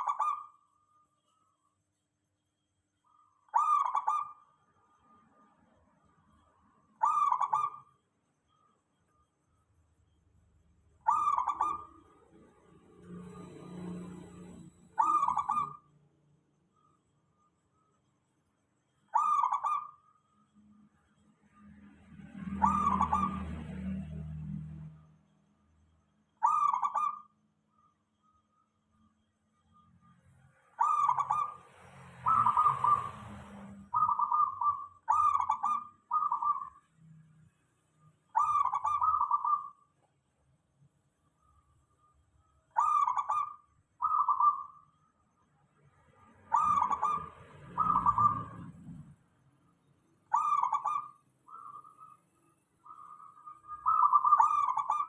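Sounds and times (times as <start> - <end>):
dove cooing: 3.5 - 4.4, 7.0 - 7.9, 11.0 - 12.2, 13.3 - 15.9, 19.1 - 20.0, 22.6 - 23.5, 26.4 - 27.3, 32.2 - 36.8, 38.3 - 39.8, 42.8 - 44.8, 46.5 - 49.2, 50.3 - 52.2, 52.8 - 55.0.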